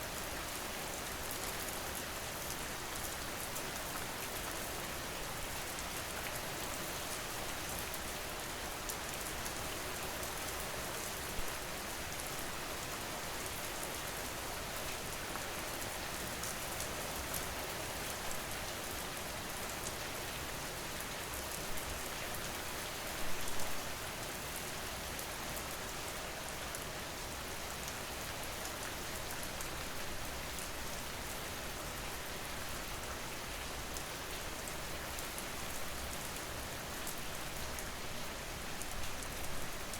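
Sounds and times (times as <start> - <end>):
rain pattering: 27.8 - 39.9.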